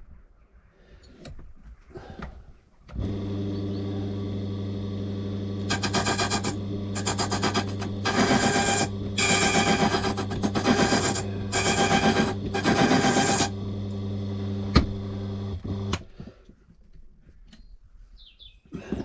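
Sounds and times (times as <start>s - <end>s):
key-cutting machine motor hum: 3.0s - 16.0s
cutter grinding metal key: 5.6s - 13.6s.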